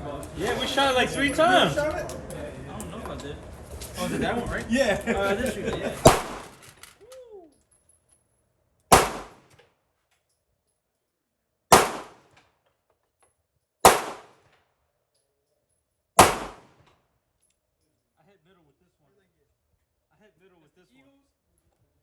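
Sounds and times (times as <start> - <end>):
pistol shots: 6.0 - 6.6, 8.9 - 9.6, 11.7 - 12.4, 13.8 - 14.5, 16.2 - 16.9.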